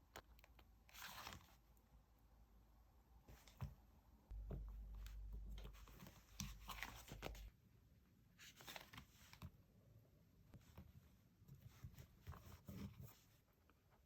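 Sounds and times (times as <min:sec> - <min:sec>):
paper rustling and crinkling: 0:00.9 - 0:01.6, 0:05.5 - 0:07.5.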